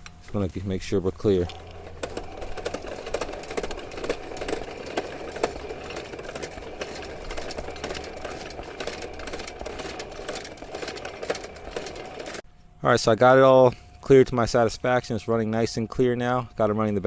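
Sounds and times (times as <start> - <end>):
drain snake motor humming: 1.0 - 12.4
spinning cable rattling and clicking: 1.2 - 12.4.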